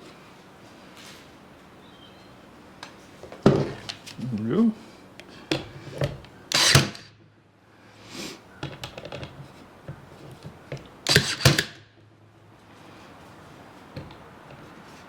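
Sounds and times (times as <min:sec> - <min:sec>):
nail gun firing into wood: 0:06.5 - 0:07.2, 0:11.0 - 0:11.8.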